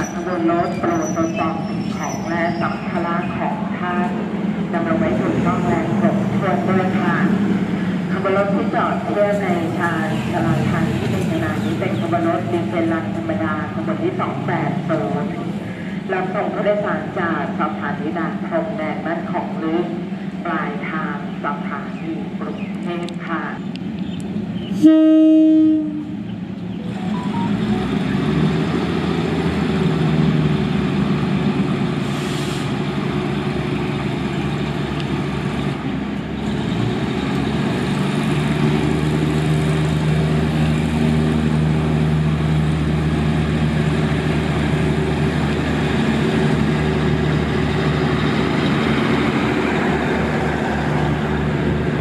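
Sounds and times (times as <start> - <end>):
train engine running: 0.0 - 52.0
train horn blast: 24.8 - 26.2.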